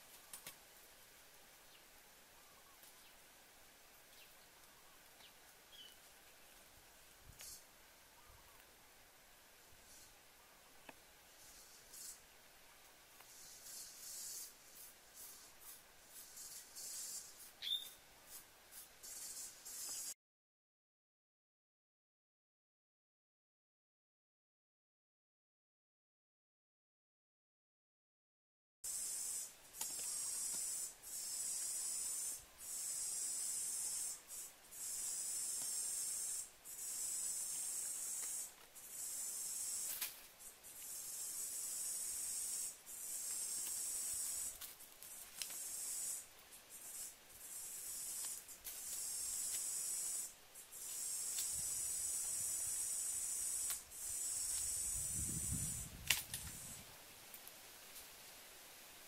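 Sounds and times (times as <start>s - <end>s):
insects buzzing: 0.0s - 20.2s, 28.9s - 59.0s
sharp click: 56.0s - 56.5s.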